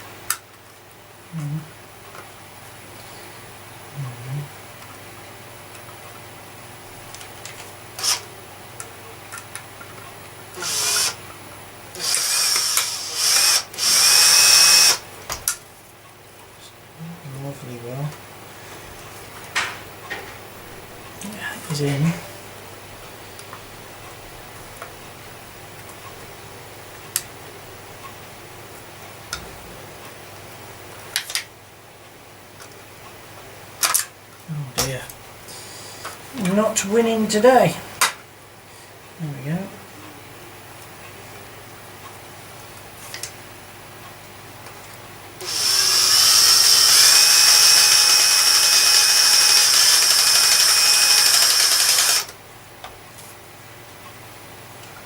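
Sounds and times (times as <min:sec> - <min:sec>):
cordless drill motor whine: 0:08.0 - 0:08.3, 0:10.6 - 0:11.2, 0:11.9 - 0:15.0, 0:45.4 - 0:52.3
sharp clicks of plastic parts: 0:31.1 - 0:31.5, 0:33.8 - 0:34.1.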